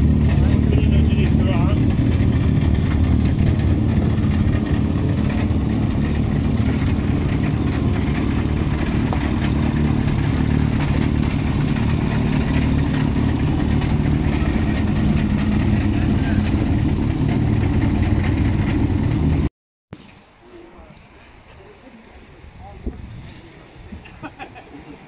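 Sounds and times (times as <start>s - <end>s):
car engine idling: 0.0s - 19.5s.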